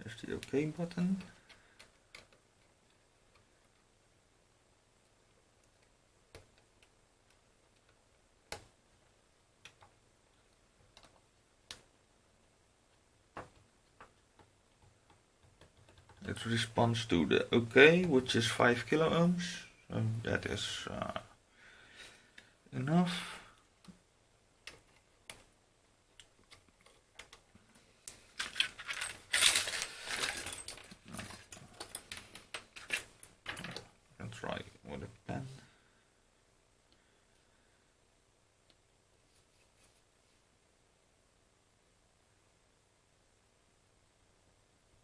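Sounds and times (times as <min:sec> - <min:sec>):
plastic parts clicking and rattling: 0:26.2 - 0:34.0.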